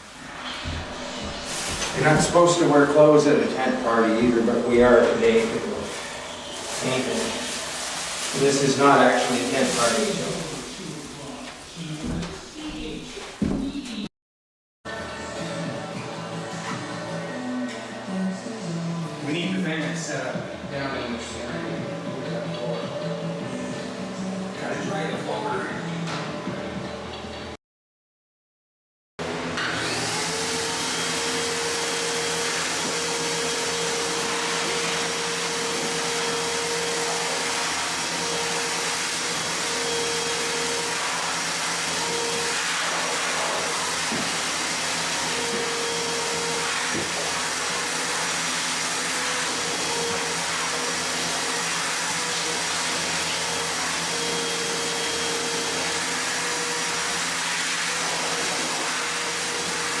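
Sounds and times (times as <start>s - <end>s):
electric blower whooshing: 0.0s - 13.8s, 29.2s - 60.0s.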